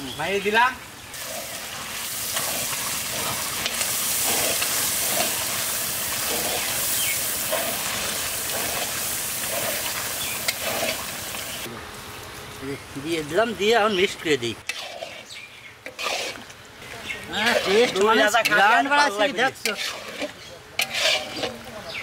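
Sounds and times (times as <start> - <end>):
curry sizzling in a pot: 1.1 - 12.4, 14.6 - 22.0
wooden spoon stirring: 14.6 - 22.0.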